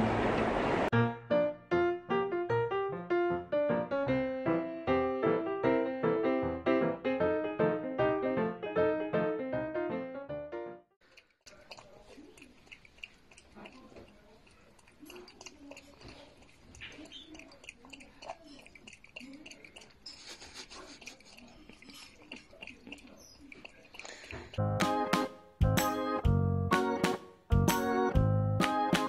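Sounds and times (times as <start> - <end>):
piano music: 0.9 - 10.9, 24.6 - 29.0
animal chewing on glass mug: 11.0 - 24.6
wet mouth noises: 11.0 - 25.0.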